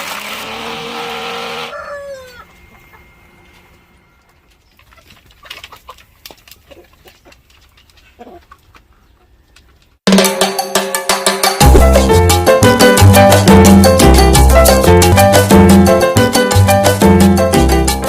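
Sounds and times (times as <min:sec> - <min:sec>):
chickens clucking: 0:01.6 - 0:10.0
upbeat latin music with drums: 0:10.0 - 0:18.0.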